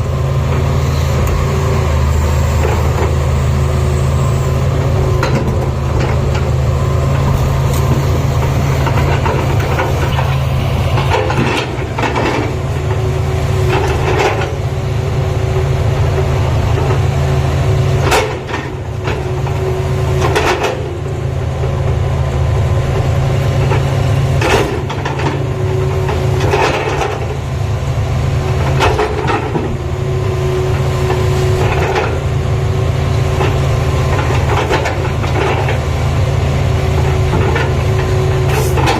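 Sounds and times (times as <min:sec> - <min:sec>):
excavator diesel engine droning: 0:00.0 - 0:38.9
machine clanks and knocks: 0:05.2 - 0:06.5, 0:18.0 - 0:19.2, 0:28.6 - 0:29.8.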